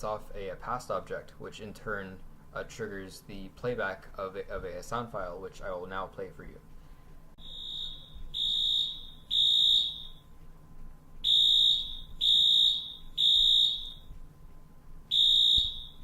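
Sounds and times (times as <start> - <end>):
loud high alarm beeps: 7.4 - 10.3, 11.2 - 14.1, 15.1 - 16.0.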